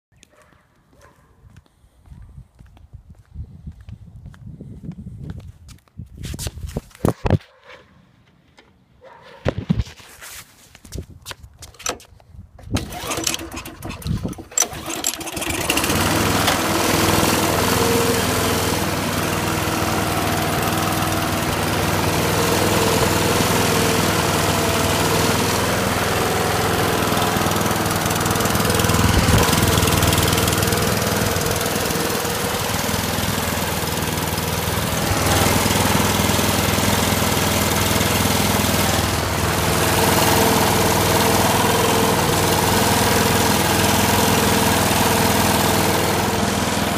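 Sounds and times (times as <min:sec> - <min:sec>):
lawn mower engine cranking: 0:11.6 - 0:46.9
lawn mower engine running: 0:12.6 - 0:46.9.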